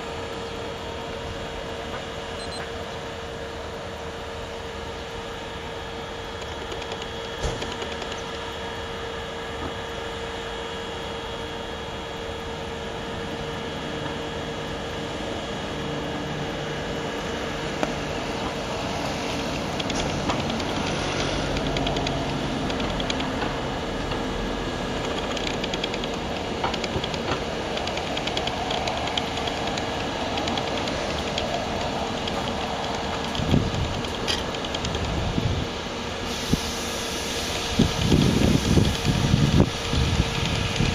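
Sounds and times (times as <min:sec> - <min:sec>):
freight train rumbling on tracks: 0:00.0 - 0:40.9
sharp clicks: 0:06.3 - 0:08.4, 0:19.4 - 0:23.5, 0:25.0 - 0:35.2.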